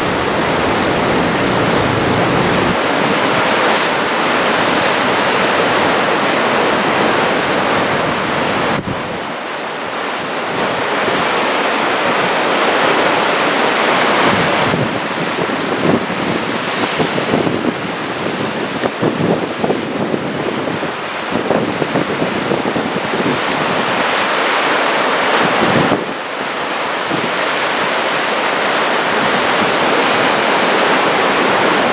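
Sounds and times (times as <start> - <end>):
wind buffeting microphone: 0.0 - 9.3
waves breaking and washing in: 0.0 - 31.9.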